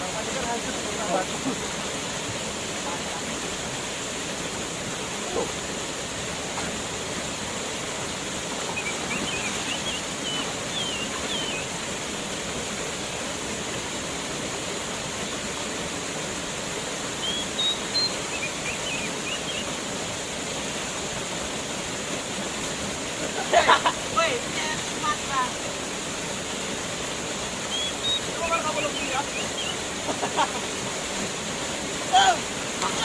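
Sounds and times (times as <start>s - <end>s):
waterfall rushing: 0.0s - 33.0s
high bird chirps: 8.7s - 11.7s, 17.2s - 19.7s, 27.7s - 29.8s.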